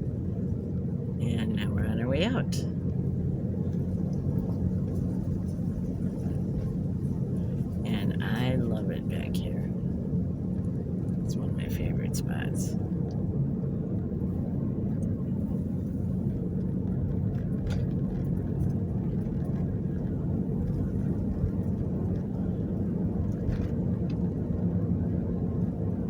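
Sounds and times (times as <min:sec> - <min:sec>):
car cabin engine and tyre noise: 0:00.0 - 0:26.0.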